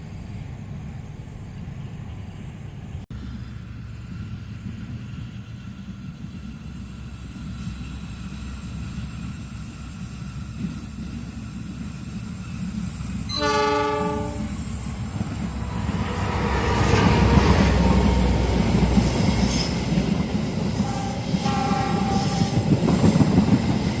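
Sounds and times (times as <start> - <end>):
train rumble: 0.0 - 24.0
locomotive horn: 13.3 - 14.7, 20.8 - 22.7.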